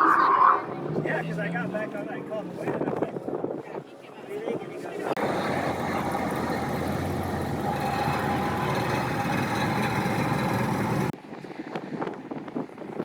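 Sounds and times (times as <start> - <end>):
motor vehicle running: 5.2 - 11.2.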